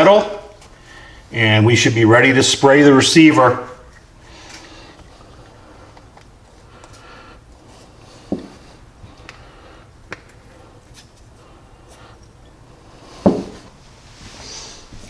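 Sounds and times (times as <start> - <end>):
dull knocks on workbench: 13.2 - 13.6.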